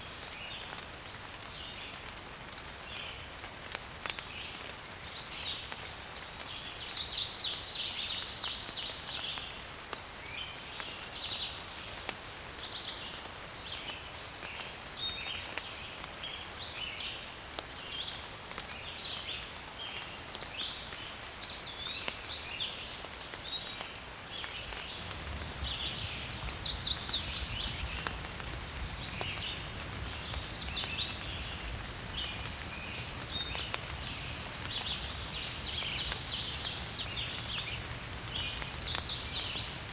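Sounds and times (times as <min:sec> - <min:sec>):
birds chirping and calling: 0:25.7 - 0:27.5.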